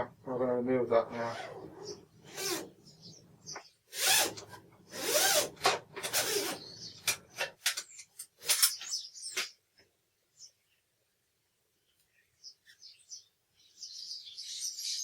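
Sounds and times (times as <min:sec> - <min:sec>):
sharp clicks and knocks: 0:07.0 - 0:09.5.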